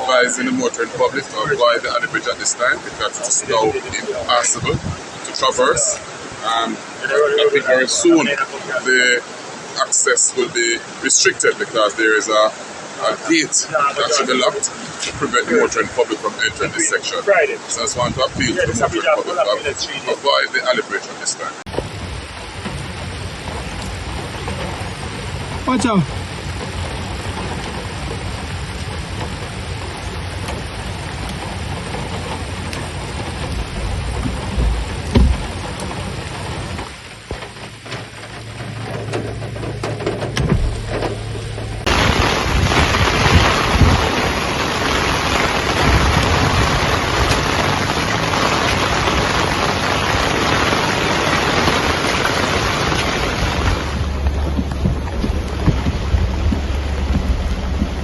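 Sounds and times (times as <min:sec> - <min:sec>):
heavy rain pouring: 0:00.0 - 0:58.0
water rushing: 0:00.0 - 0:58.0
low rumble: 0:38.5 - 0:58.0.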